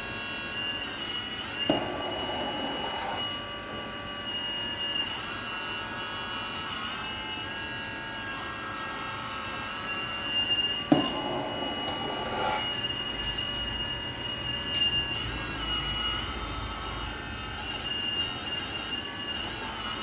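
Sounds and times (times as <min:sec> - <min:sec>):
mechanical hum: 0:00.0 - 0:20.0
toy excavator motors whining: 0:00.8 - 0:04.1, 0:10.1 - 0:20.0.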